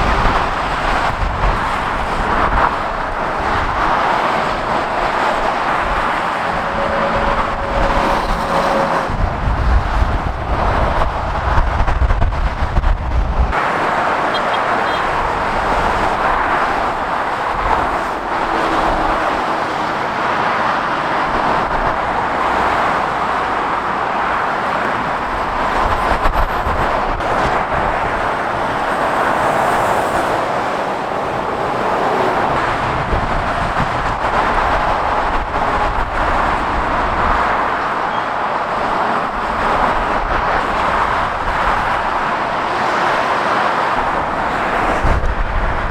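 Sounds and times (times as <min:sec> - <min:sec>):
motorway traffic rushing: 0:00.0 - 0:45.9
deep engine rumble: 0:02.3 - 0:13.6.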